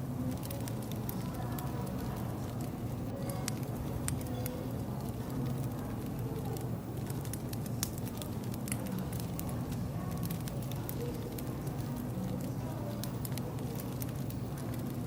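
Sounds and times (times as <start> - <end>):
low fire rumble: 0.0 - 15.0
wood fire crackling: 0.0 - 15.0.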